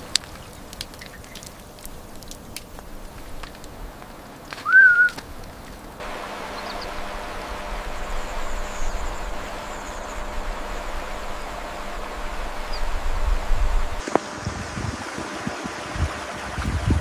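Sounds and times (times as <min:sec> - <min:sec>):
faint clicks: 0:00.0 - 0:03.8
flowing water: 0:00.0 - 0:17.0
whistled bird call: 0:04.6 - 0:05.2
wind rushing: 0:06.0 - 0:17.0.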